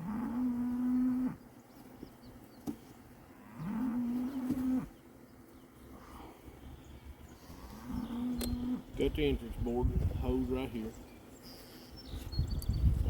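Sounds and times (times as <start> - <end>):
cow mooing: 0.0 - 1.4, 3.4 - 5.0, 7.5 - 8.9.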